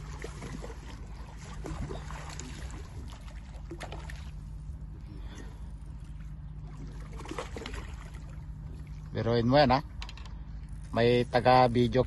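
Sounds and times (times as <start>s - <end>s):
water splashing: 0.0s - 4.5s, 6.6s - 9.1s
low water rumble: 0.0s - 12.0s.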